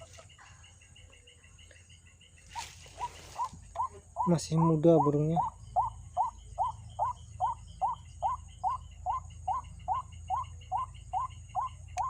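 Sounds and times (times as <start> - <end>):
waterhen call: 2.5 - 12.0.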